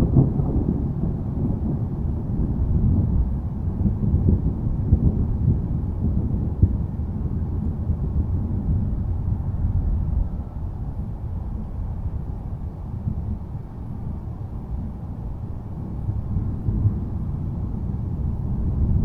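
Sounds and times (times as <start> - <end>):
low rolling thunder: 0.0 - 19.0.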